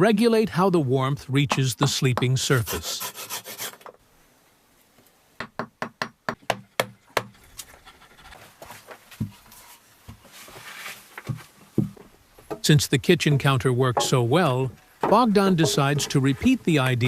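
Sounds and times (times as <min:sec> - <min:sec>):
sharp knocks: 0:11.3 - 0:16.5.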